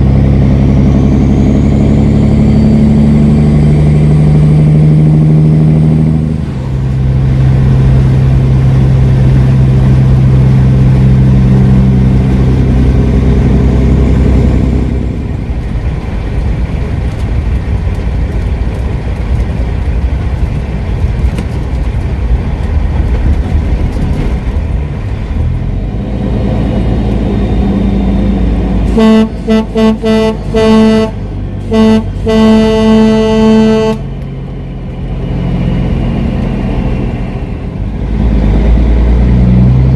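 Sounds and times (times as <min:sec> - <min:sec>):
truck diesel engine running: 0:00.0 - 0:39.9
truck horn blasts: 0:28.8 - 0:34.2.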